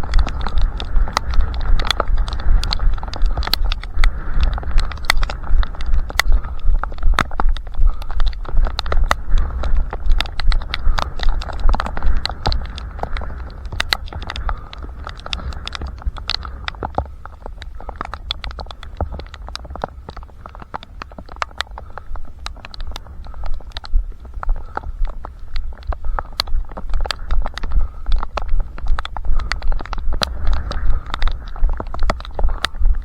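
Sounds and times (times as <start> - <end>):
running footsteps slapping ground: 0.0 - 33.0
wind rumble on microphone: 0.0 - 33.0.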